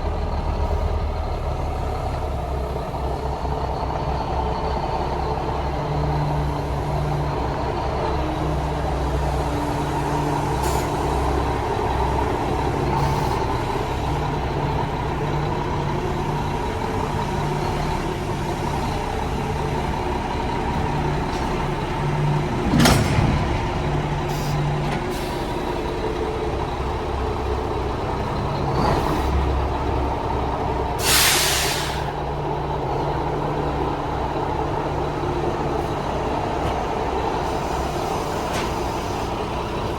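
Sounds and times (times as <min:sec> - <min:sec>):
diesel truck engine idling: 0:00.0 - 0:39.9
sharp clunk: 0:22.7 - 0:23.5
air release hiss: 0:31.0 - 0:32.1.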